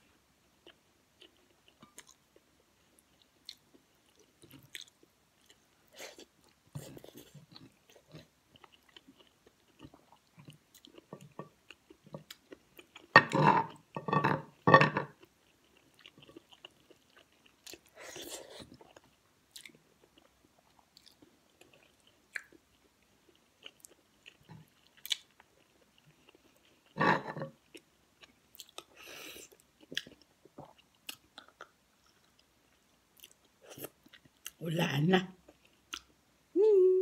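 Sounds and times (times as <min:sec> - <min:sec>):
person chewing food: 0:00.5 - 0:34.6, 0:35.4 - 0:36.2.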